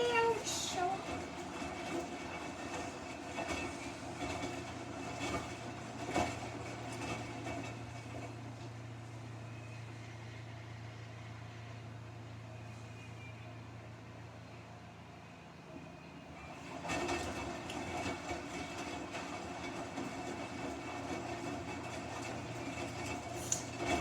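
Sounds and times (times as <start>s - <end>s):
washing machine humming: 0.0s - 8.3s, 16.3s - 24.0s.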